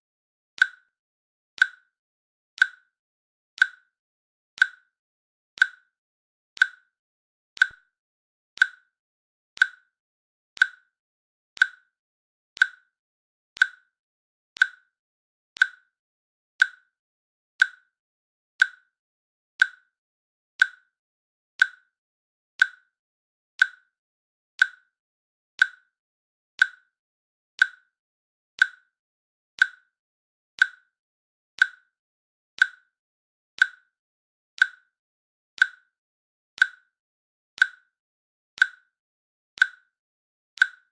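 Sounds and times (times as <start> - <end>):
timer ticking: 0.6 - 1.0, 1.6 - 2.0, 2.6 - 3.0, 3.6 - 4.0, 4.6 - 5.0, 5.6 - 5.9, 6.6 - 7.0, 7.6 - 8.0, 8.6 - 9.0, 9.6 - 10.0, 10.6 - 11.0, 11.6 - 12.0, 12.6 - 13.0, 13.6 - 14.0, 14.6 - 15.0, 15.6 - 16.0, 16.6 - 17.0, 17.6 - 18.0, 18.6 - 18.9, 19.6 - 20.0, 20.6 - 21.0, 21.6 - 22.0, 22.6 - 23.0, 23.6 - 24.0, 24.6 - 25.0, 25.6 - 26.0, 26.6 - 27.0, 27.6 - 28.0, 28.6 - 29.0, 29.6 - 30.0, 30.6 - 31.0, 31.6 - 32.0, 32.6 - 33.0, 33.6 - 34.0, 34.6 - 35.0, 35.6 - 36.0, 36.6 - 37.0, 37.6 - 38.0, 38.6 - 39.0, 39.6 - 40.0, 40.6 - 40.9.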